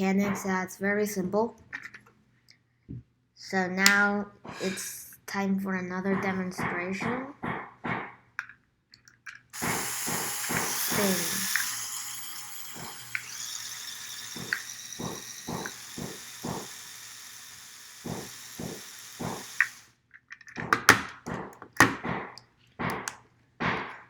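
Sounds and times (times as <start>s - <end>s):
small electric motors whirring: 9.6s - 19.9s
plastic model clicks and knocks: 20.1s - 23.2s.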